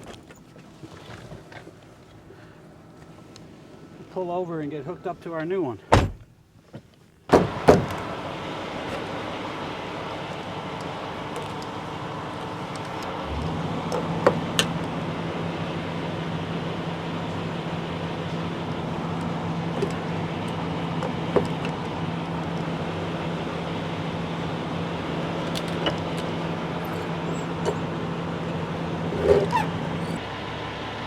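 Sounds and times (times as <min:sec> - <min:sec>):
diesel truck engine droning: 0:07.3 - 0:31.0
clicks and squeaks: 0:25.4 - 0:30.2.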